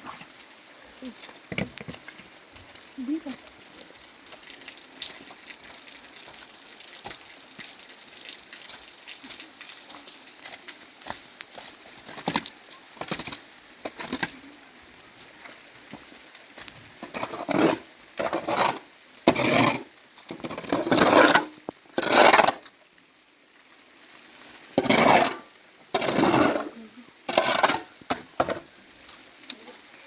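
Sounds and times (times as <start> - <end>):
rough scraping strokes: 17.0 - 22.7, 24.8 - 28.6.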